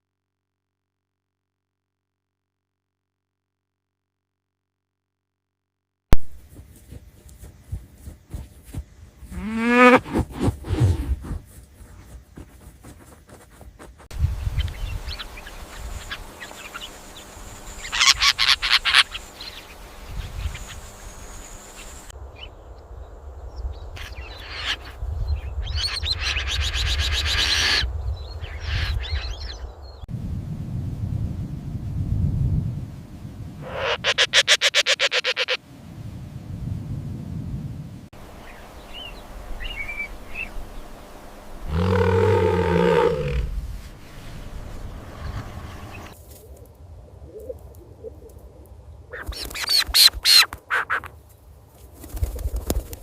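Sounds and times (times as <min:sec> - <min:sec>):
animal rising cry: 0:09.3 - 0:11.2, 0:41.6 - 0:43.7
short sudden animal noises: 0:09.3 - 0:11.4, 0:41.6 - 0:43.7.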